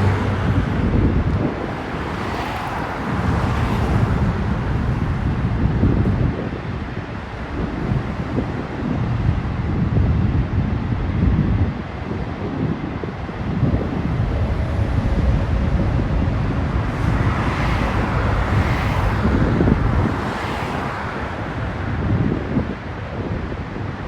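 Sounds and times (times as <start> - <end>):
freight cars rolling on rails: 0.0 - 9.7, 11.9 - 21.8
wind noise on microphone: 0.0 - 24.0.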